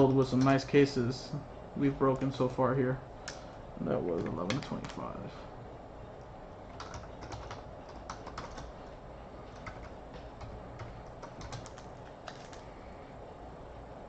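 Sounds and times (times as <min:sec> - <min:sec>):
computer keyboard typing: 0:04.1 - 0:05.1, 0:06.7 - 0:12.7.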